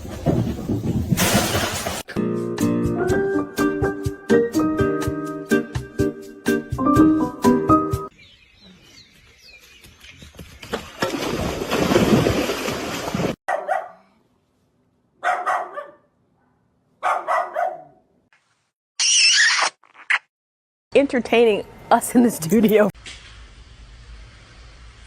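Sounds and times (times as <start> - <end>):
dog barking: 13.5 - 14.1, 15.2 - 18.0.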